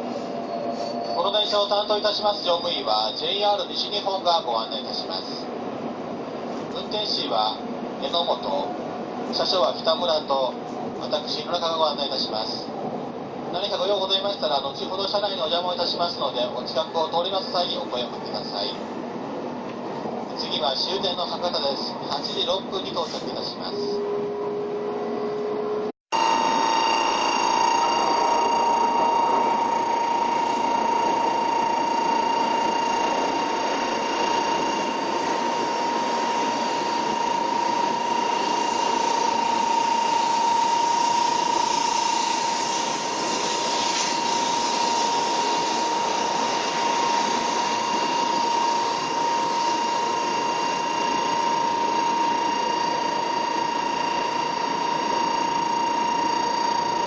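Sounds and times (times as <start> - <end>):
train cabin noise with high whine: 0.0 - 57.0.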